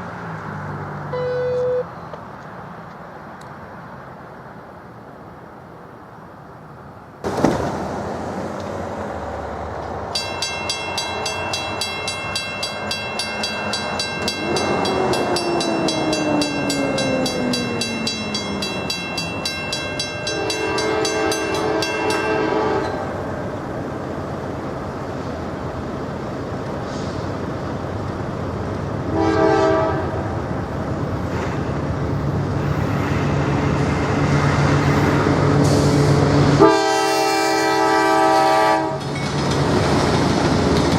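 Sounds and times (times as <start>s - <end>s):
train rumbling: 0.0s - 40.9s
locomotive air horn blasts: 1.1s - 1.9s, 20.3s - 23.1s, 29.1s - 30.2s, 36.6s - 39.0s.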